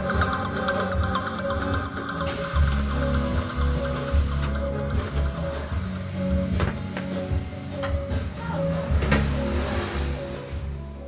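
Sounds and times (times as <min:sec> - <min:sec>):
background music with heavy bass: 0:00.0 - 0:11.0.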